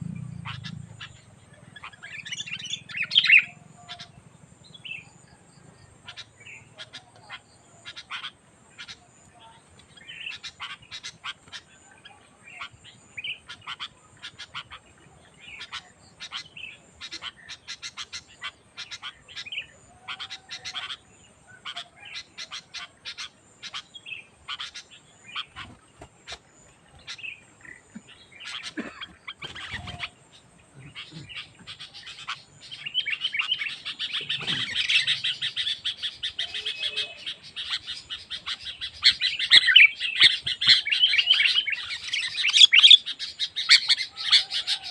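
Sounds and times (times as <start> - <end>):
bulbul chirping: 0.0 - 5.0.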